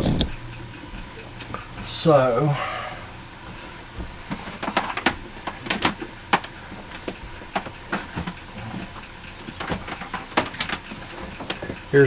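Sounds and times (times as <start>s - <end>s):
electrical cable clicking and rustling: 3.4s - 12.0s.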